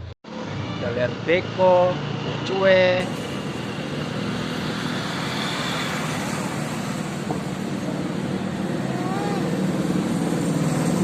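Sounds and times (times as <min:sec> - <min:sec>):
diesel engine running: 0:02.8 - 0:11.0.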